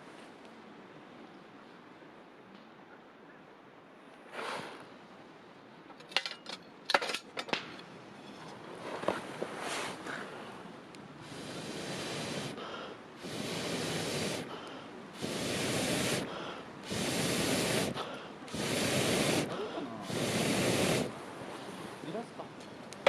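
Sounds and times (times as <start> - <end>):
air blown into campfire: 4.2 - 5.1, 8.9 - 22.3.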